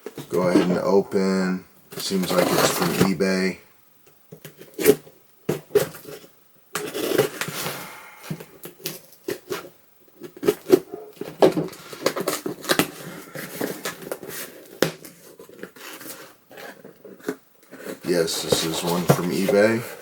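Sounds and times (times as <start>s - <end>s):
package rustling and crinkling: 8.4s - 20.0s.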